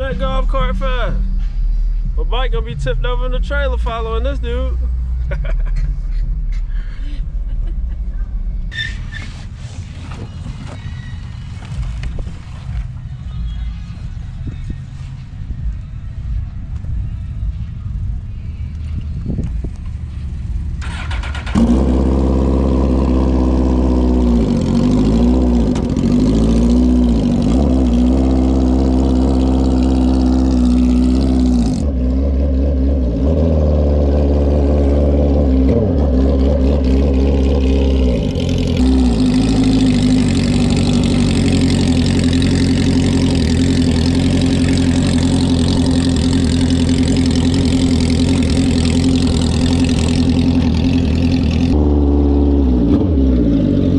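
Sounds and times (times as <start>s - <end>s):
vehicle engine revving: 18.9s - 53.9s.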